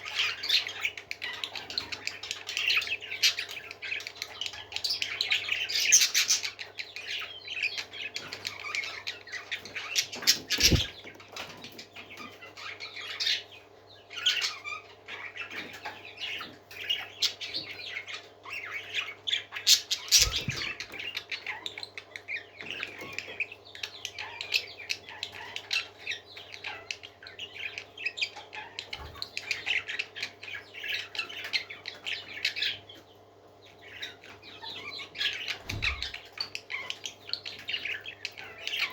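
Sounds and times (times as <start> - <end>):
parrots squawking: 9.4 - 11.0, 19.6 - 21.6
dull thumps: 10.6 - 10.9.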